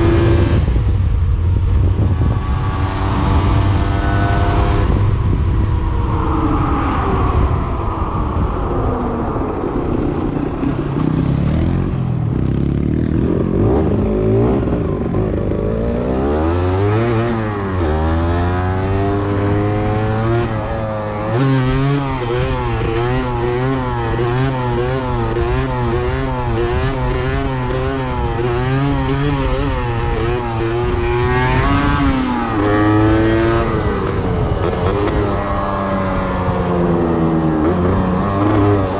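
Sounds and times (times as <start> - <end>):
motorcycle engine revving: 9.0 - 38.9.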